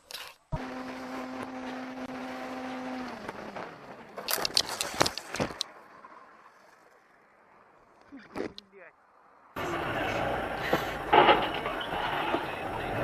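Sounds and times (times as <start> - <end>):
vehicle engine humming: 0.0 - 13.0
sharp knocks and clattering: 10.7 - 12.6.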